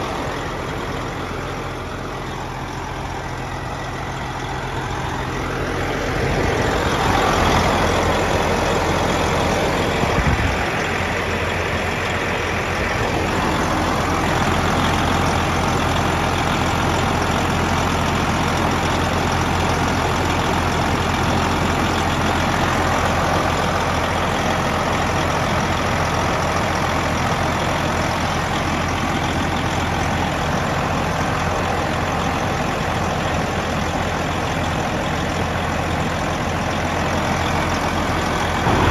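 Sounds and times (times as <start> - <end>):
broad noise haze: 0.0 - 16.1, 38.2 - 38.9
vehicle engine running: 0.0 - 38.9.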